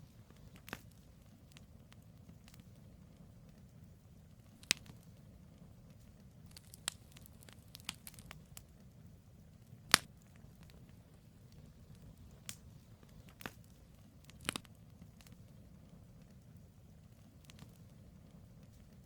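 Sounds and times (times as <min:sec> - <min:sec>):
campfire crackling and popping: 0:00.0 - 0:19.0
low steady rumble: 0:00.0 - 0:19.0.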